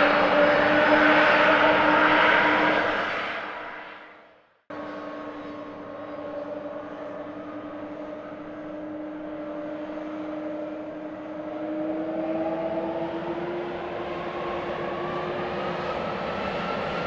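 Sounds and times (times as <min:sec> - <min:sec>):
jet engines whining: 0:04.8 - 0:17.0.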